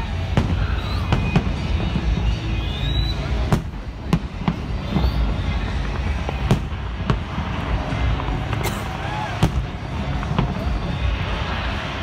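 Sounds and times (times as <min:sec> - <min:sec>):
low rumble of distant fireworks: 0:00.0 - 0:12.0
sharp firework bangs: 0:03.3 - 0:10.7.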